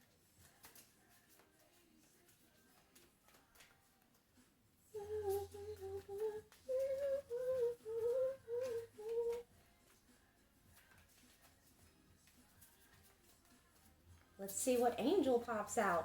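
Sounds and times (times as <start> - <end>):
woman humming a tune: 4.9 - 9.5.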